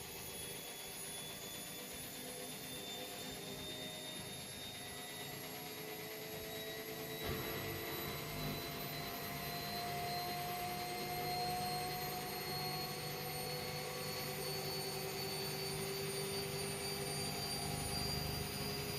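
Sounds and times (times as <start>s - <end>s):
washing machine motor whining: 0.0s - 18.9s.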